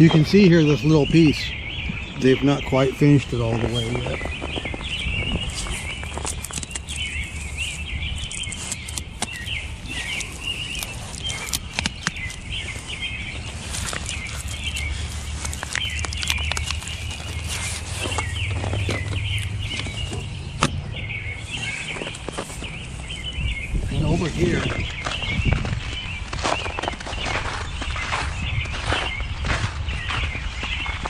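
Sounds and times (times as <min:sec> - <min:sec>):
flock of small birds chirping: 0:00.0 - 0:31.0
sharp clicks: 0:08.3 - 0:12.5.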